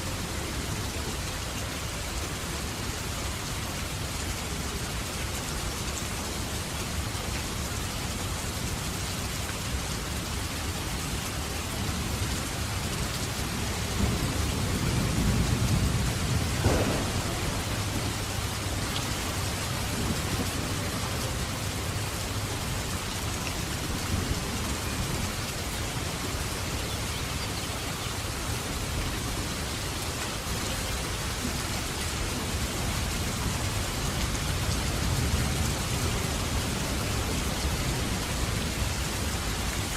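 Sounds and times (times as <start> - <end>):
heavy rain: 0.0 - 39.9
thunder rumble: 13.6 - 21.5.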